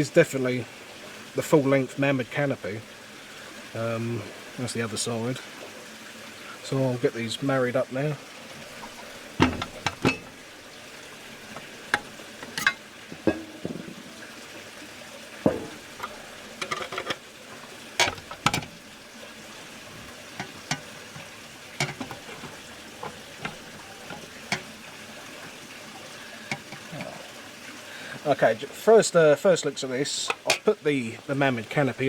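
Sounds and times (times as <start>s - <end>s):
small metal parts clicking and scraping: 11.9s - 12.8s, 16.0s - 17.2s.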